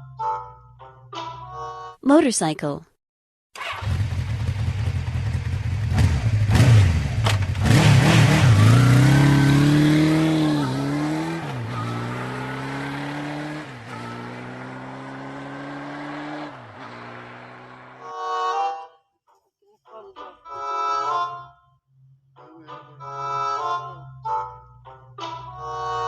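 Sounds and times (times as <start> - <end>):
motorcycle engine revving: 3.6 - 18.1.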